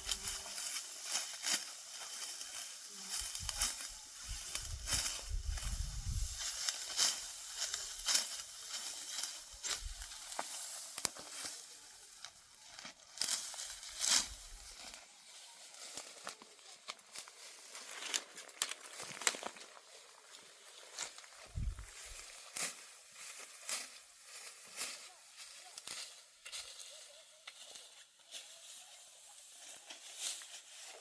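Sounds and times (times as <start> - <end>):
dry crackling and rustling: 0.0 - 31.0.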